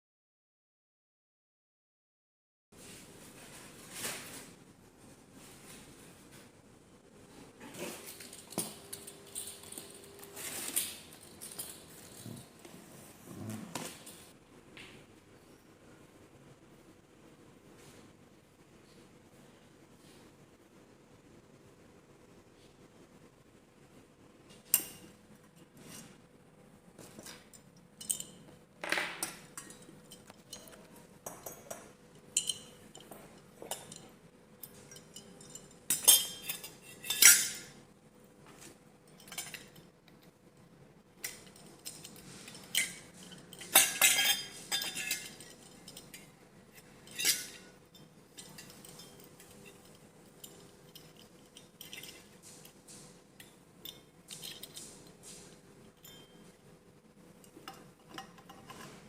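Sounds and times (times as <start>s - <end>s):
faint steady hum: 2.8s - 59.0s
hard objects clinking and clattering: 7.7s - 12.9s, 41.2s - 56.4s.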